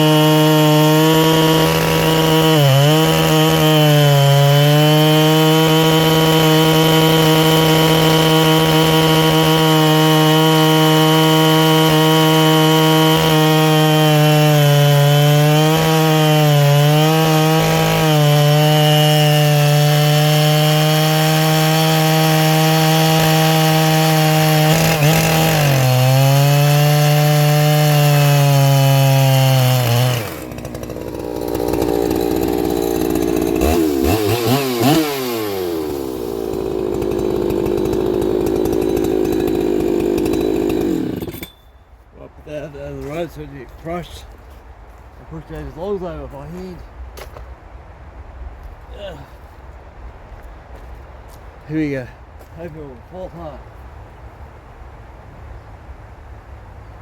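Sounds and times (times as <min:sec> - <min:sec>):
chainsaw cutting through log: 0:00.0 - 0:41.6.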